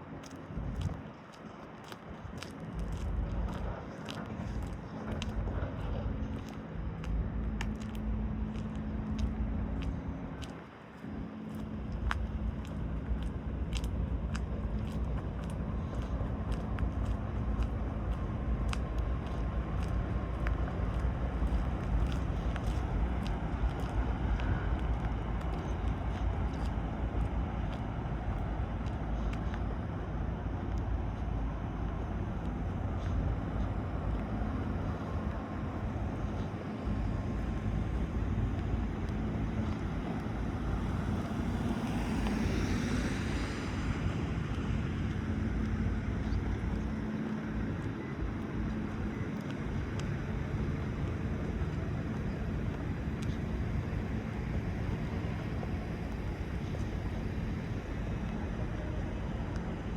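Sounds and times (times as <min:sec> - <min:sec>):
faint steady hum: 0:00.0 - 0:59.9
low rumble: 0:02.2 - 0:59.9.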